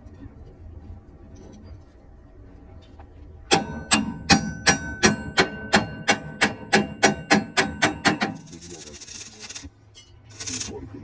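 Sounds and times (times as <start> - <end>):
hammer striking steel: 3.5 - 10.7.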